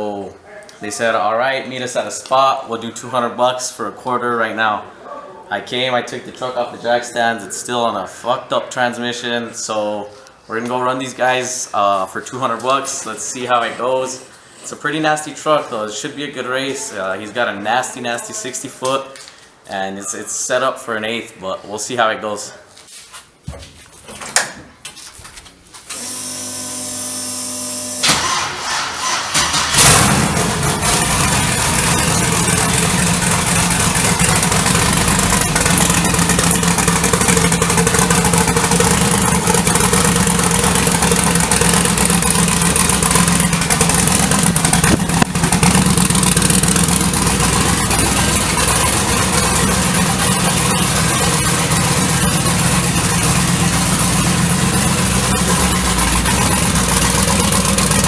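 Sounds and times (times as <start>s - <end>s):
engine starting and idling: 25.9s - 58.0s
starter cranking: 28.0s - 58.0s.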